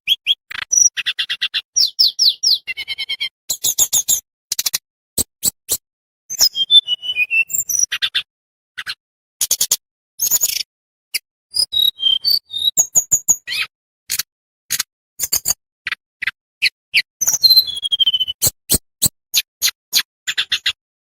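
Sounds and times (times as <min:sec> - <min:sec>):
songbird chips and whistles: 0:00.0 - 0:04.7, 0:05.4 - 0:08.1, 0:11.5 - 0:13.7, 0:15.2 - 0:20.8.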